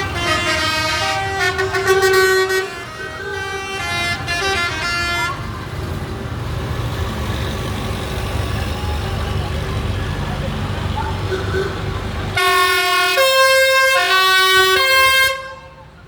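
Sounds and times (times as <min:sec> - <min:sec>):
vehicle horn playing notes: 0:00.0 - 0:05.5, 0:12.4 - 0:15.8
tractor engines running: 0:00.0 - 0:16.0.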